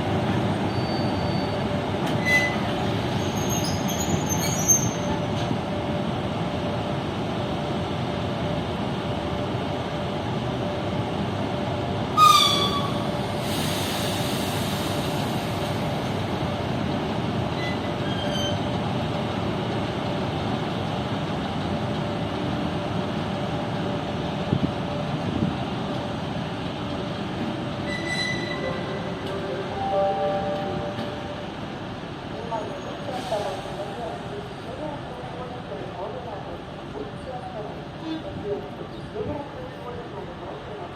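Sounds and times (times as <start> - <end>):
locomotive rumbling: 0.0 - 40.9
shrill squeal: 27.9 - 28.8.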